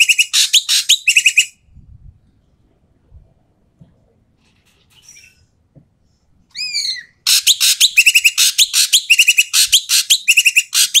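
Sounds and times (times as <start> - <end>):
bird calling harshly: 0.0 - 1.6, 6.5 - 11.0
down-slurred bird whistle: 0.0 - 1.6, 6.5 - 11.0
rasping bird calls and trills: 6.5 - 11.0.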